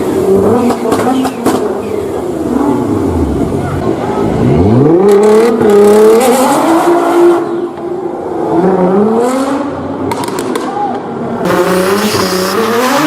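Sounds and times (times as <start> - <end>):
car engine revving hard: 4.3 - 7.5, 11.4 - 13.0.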